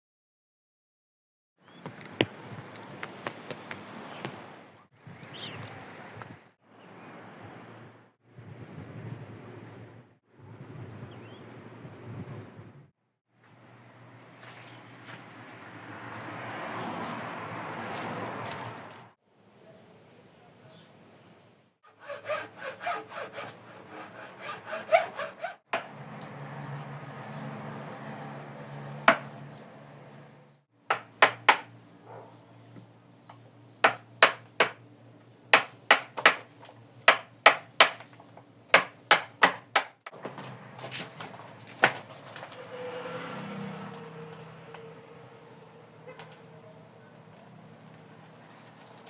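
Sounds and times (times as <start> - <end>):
scraping strokes: 21.9 - 25.6
hand sawing wood: 21.9 - 26.0
sharp knocks on wood: 29.1 - 29.3, 30.9 - 31.7, 33.8 - 34.8, 38.8 - 40.0.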